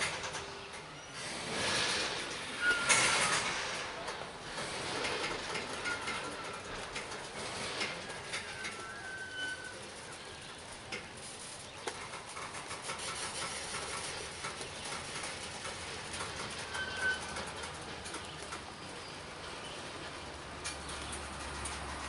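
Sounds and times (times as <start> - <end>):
train wheels rumbling on rails: 0.0 - 22.0
high wheel squeals: 0.3 - 11.6, 13.0 - 22.0
wheel clicks: 2.8 - 19.5.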